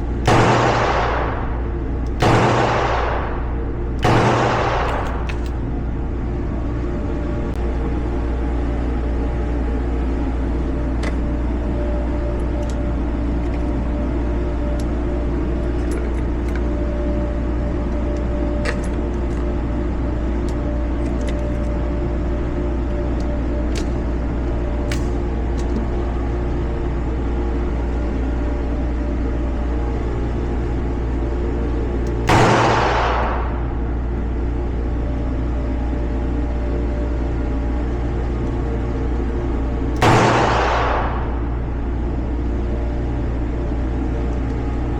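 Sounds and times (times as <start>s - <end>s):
low mechanical hum: 0.0s - 44.9s.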